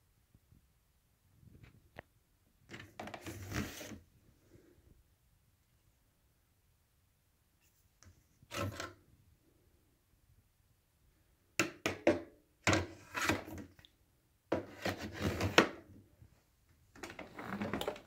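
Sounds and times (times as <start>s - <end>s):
plastic vacuum parts clattering: 17.0s - 18.0s.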